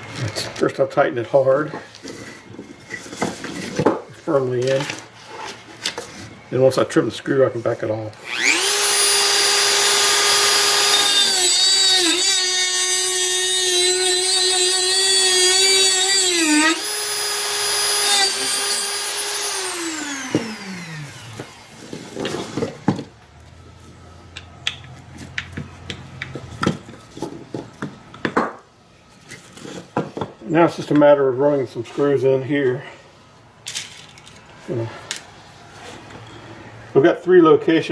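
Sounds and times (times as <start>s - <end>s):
rotary tool whining: 8.2s - 22.8s.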